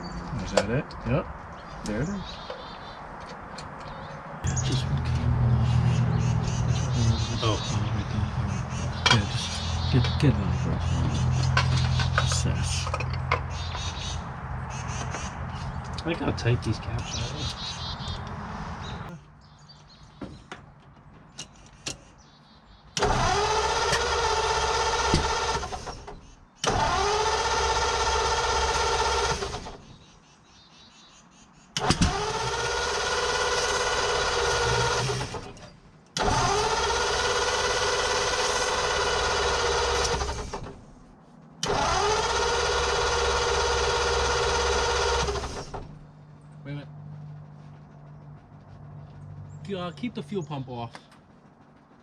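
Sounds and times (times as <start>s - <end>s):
engine starter cranking: 23.0s - 30.0s, 31.8s - 46.1s.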